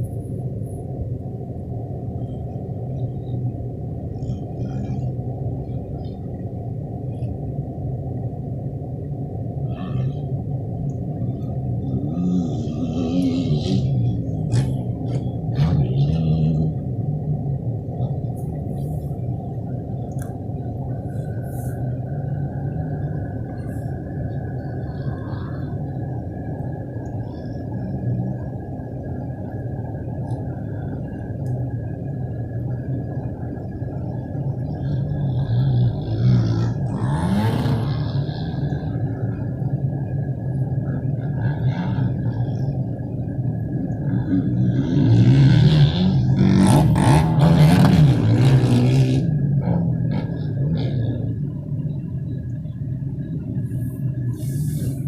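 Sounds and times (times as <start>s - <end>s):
faint high whine: 0.0s - 55.0s
wind rumble on microphone: 0.0s - 55.0s.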